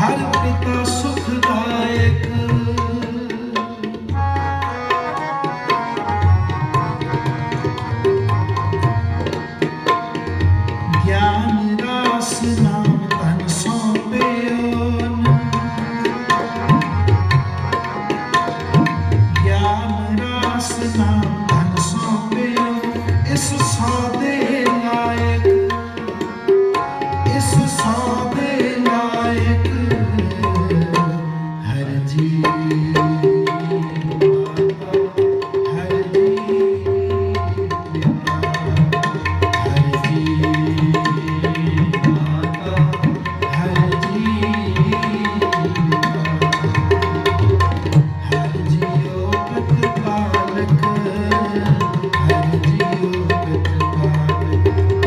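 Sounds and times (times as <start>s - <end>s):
tabla played fast: 0.0s - 55.0s.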